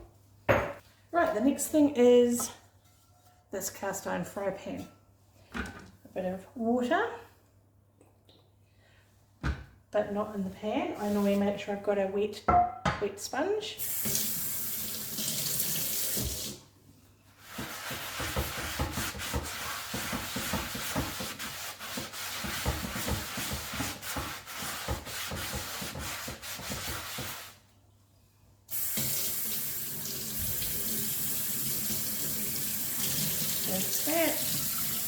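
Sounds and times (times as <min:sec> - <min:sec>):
sponge scrubbing pan: 0:17.4 - 0:27.6.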